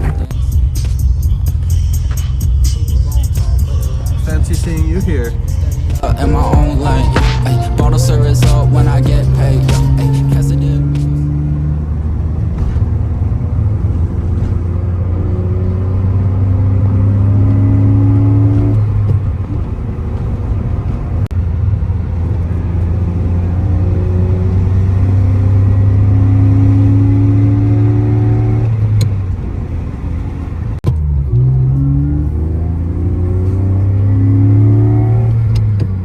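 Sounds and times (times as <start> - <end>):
car engine revving hard: 31.3 - 36.0.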